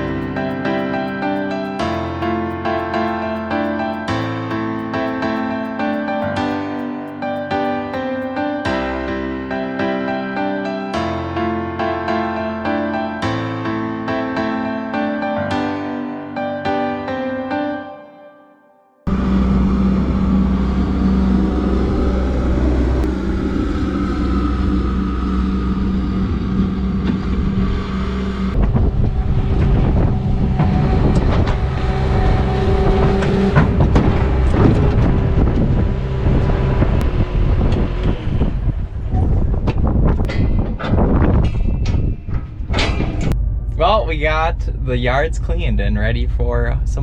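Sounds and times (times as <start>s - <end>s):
loader engine running: 0.0s - 8.2s, 19.1s - 41.4s, 42.5s - 47.0s.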